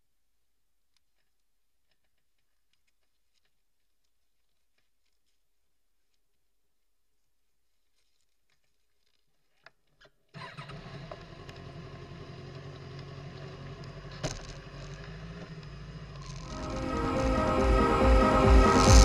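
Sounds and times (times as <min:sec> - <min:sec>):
motorcycle engine starting and idling: 0:10.3 - 0:19.0.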